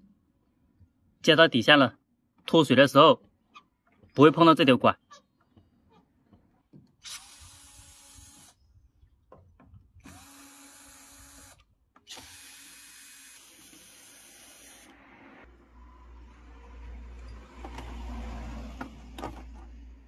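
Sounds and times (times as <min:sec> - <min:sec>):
power screwdriver whine: 0:07.0 - 0:08.6, 0:10.0 - 0:15.0.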